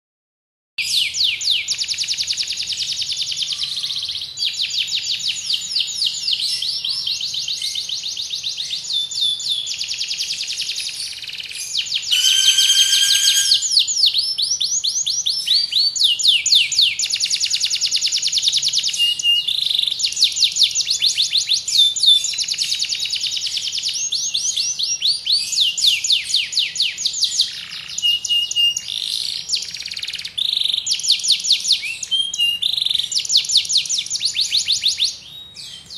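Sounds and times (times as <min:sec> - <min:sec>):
canary singing trills: 0:00.8 - 0:35.9.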